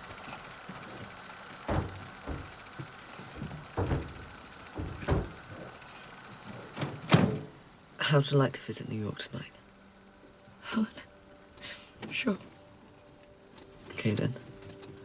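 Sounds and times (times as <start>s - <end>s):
faint background hum: 0.0s - 15.0s
dull knocks and thumps: 1.7s - 5.4s.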